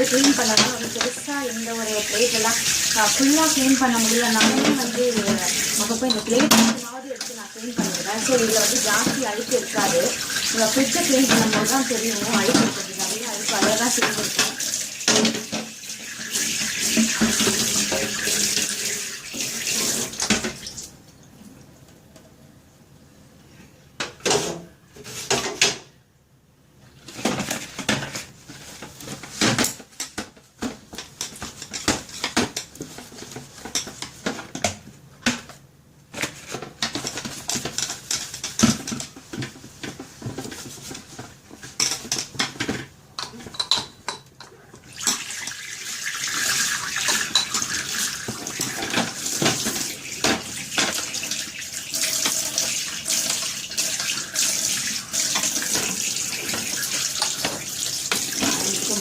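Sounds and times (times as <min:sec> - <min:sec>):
fridge shelves clattering in sink: 0:00.0 - 0:20.7, 0:45.0 - 0:59.0.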